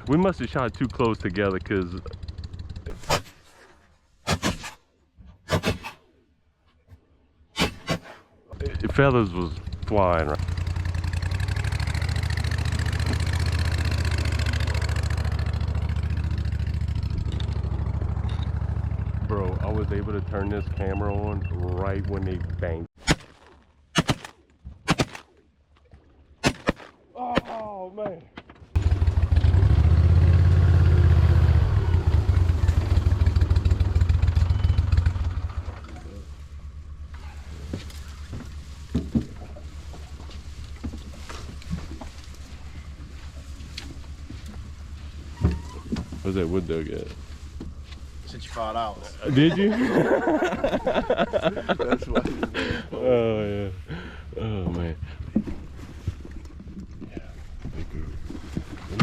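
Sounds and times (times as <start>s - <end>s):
boat motor idling: 0.0s - 2.9s, 8.6s - 22.9s, 28.8s - 49.3s.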